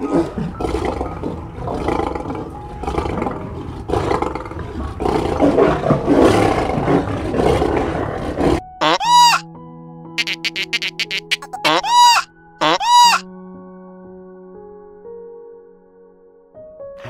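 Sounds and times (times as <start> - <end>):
lions roaring: 0.0 - 8.6.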